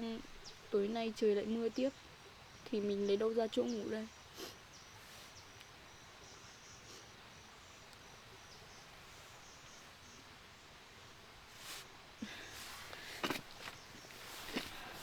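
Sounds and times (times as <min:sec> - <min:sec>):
background hiss: 0:00.0 - 0:15.0
insect chirping: 0:00.0 - 0:15.0
soft rustle: 0:04.3 - 0:05.8, 0:08.8 - 0:10.3, 0:11.2 - 0:15.0.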